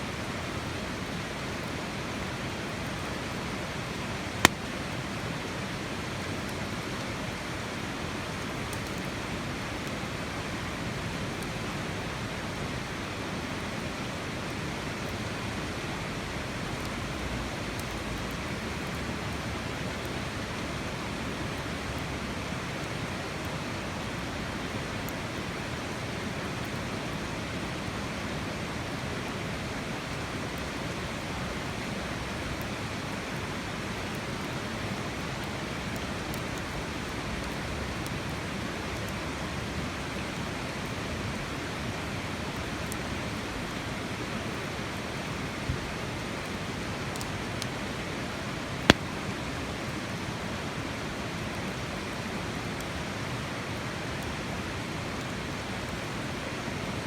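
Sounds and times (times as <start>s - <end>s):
campfire crackling: 0.2s - 10.1s, 48.7s - 49.5s
sharp fire pops: 4.4s - 4.7s, 48.9s - 49.2s.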